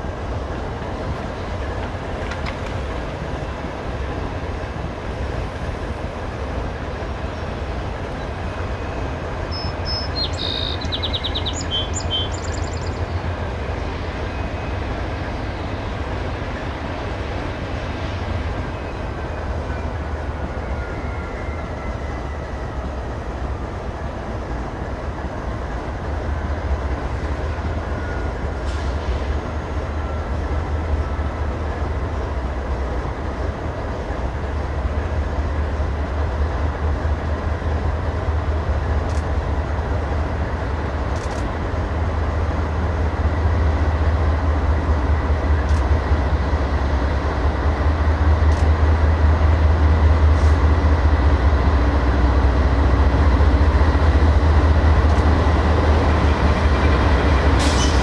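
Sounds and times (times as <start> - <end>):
diesel locomotive engine rumble: 0.0 - 58.0
bird chirping: 9.5 - 13.2.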